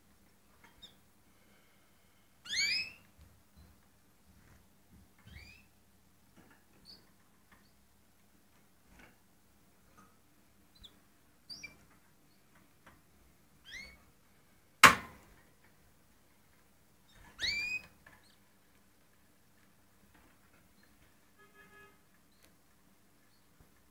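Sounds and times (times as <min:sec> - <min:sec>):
canaries chirping: 0:02.4 - 0:03.1, 0:05.2 - 0:05.7, 0:10.7 - 0:12.5, 0:13.6 - 0:14.0, 0:17.1 - 0:18.4.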